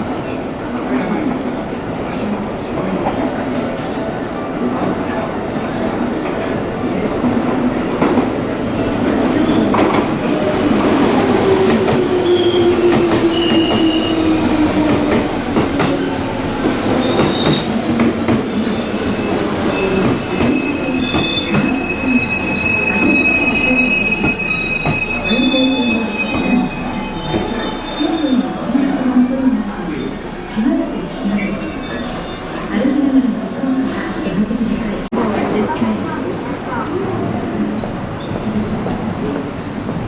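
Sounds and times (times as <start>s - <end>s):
train cars rumbling: 0.0s - 40.0s
train wheels squealing: 9.2s - 35.1s.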